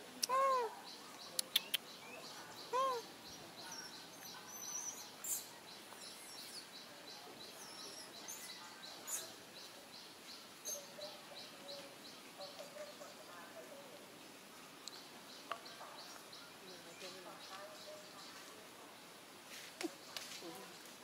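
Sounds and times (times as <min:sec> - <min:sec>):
bird chirping: 0:00.2 - 0:13.3.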